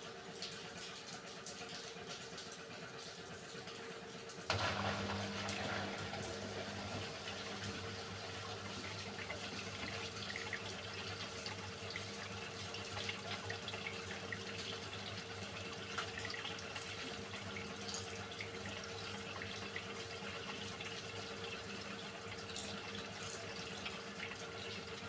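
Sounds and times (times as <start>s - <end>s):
steady machine hum: 4.5s - 13.0s
water rushing into washing machine: 4.5s - 25.0s.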